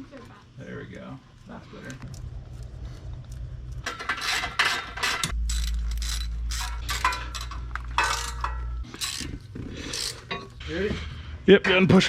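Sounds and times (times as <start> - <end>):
low steady hum: 0.0 - 12.0
ratchet wrench rasping: 3.8 - 10.5.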